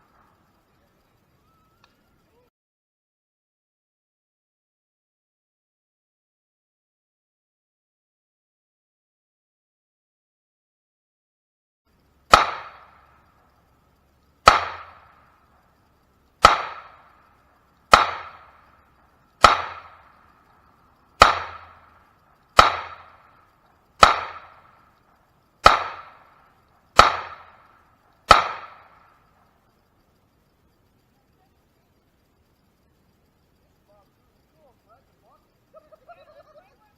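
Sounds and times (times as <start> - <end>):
handgun shots with echo: 12.3 - 13.0, 14.4 - 15.1, 16.4 - 17.0, 17.9 - 18.6, 19.4 - 20.1, 21.2 - 21.9, 22.6 - 23.2, 24.0 - 24.7, 25.6 - 26.3, 27.0 - 27.6, 28.3 - 29.1.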